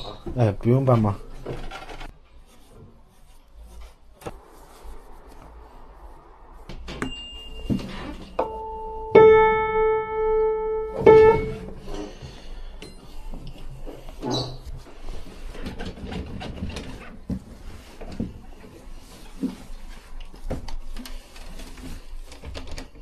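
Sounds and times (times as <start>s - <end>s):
out of tune piano notes: 8.4s - 11.9s
knocks and rubbing: 11.0s - 12.0s, 13.9s - 18.4s.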